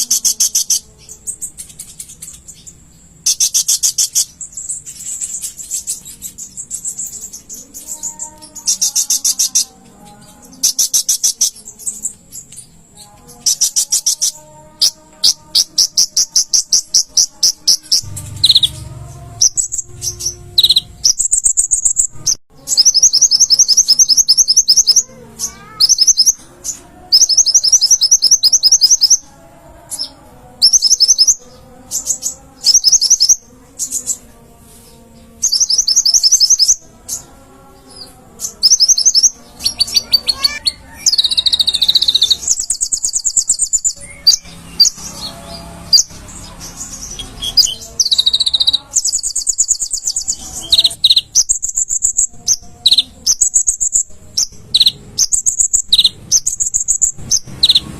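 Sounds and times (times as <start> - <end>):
sunbird trilling high chips: 13.4 - 29.3, 38.4 - 57.9
faint low bird warbling: 13.5 - 26.4.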